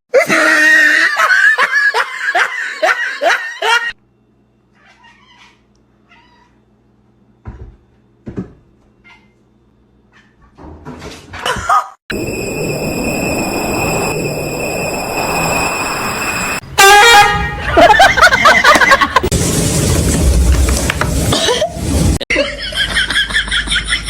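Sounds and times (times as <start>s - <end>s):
noisy burst: 12.1s - 22.2s.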